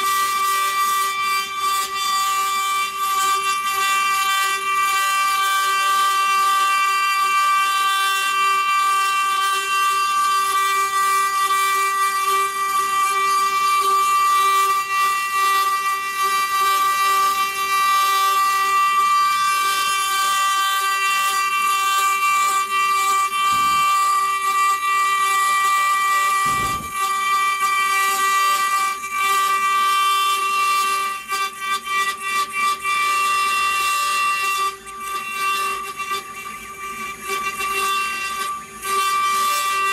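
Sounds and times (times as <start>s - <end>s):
router spindle whine: 0.0s - 39.9s
bit cutting stone hiss: 10.2s - 31.8s.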